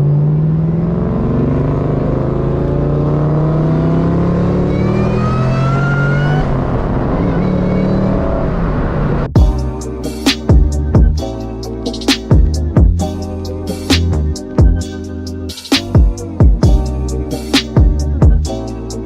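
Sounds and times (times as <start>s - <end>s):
car engine accelerating hard: 0.0s - 9.4s.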